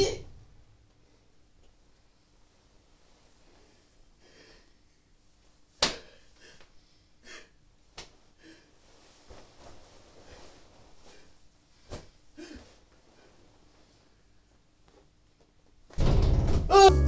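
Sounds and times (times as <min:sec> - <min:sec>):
rustling: 0:08.8 - 0:14.2.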